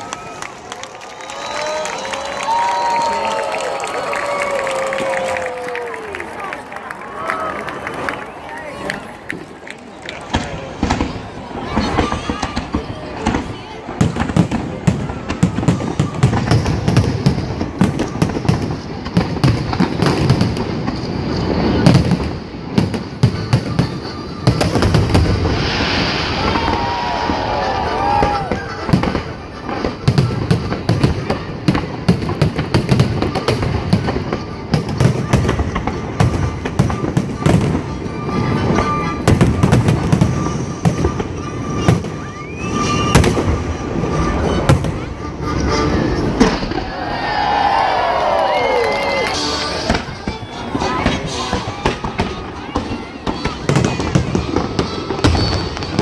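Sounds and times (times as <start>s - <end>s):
fireworks bangs and crackling: 0.0s - 6.6s, 7.3s - 56.0s
rising firework whistle: 23.3s - 31.0s, 36.2s - 56.0s.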